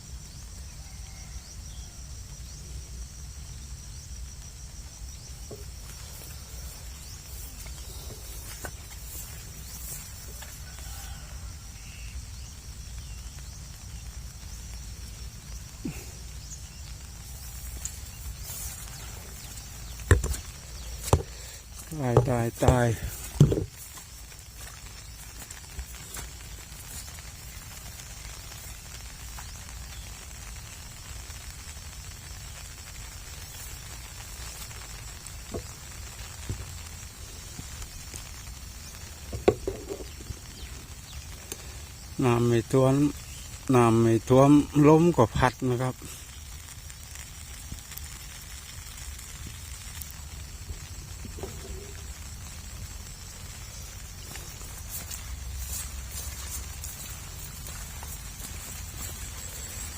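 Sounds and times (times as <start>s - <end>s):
faint high hiss: 0.0s - 59.9s
soft knocks: 23.3s - 23.7s, 39.4s - 40.1s.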